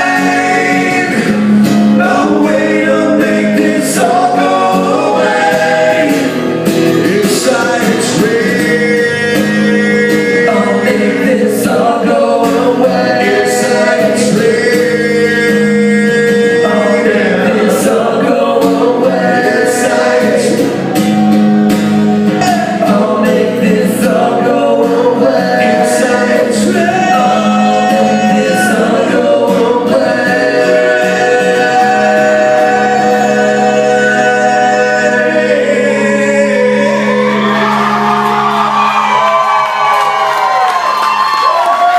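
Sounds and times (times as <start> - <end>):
strummed acoustic guitar: 0.0 - 39.1
person singing long held notes: 22.2 - 39.2.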